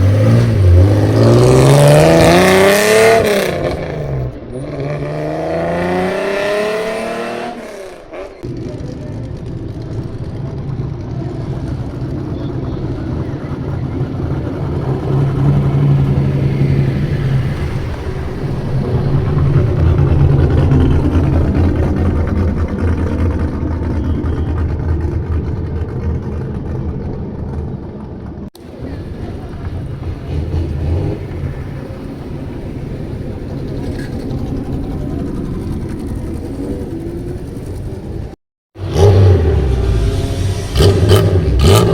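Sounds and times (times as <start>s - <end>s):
car exhaust revving: 0.0s - 9.9s, 28.7s - 41.9s.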